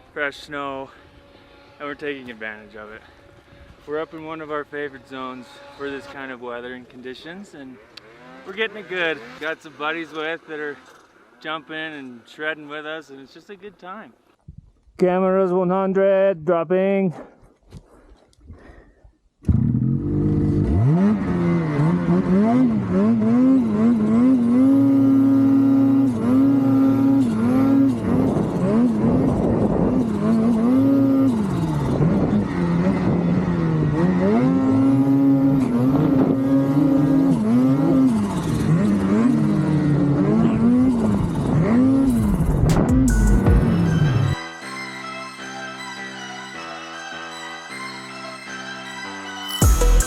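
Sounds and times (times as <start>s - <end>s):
snowmobile engine revving: 0.0s - 14.1s, 19.4s - 44.4s.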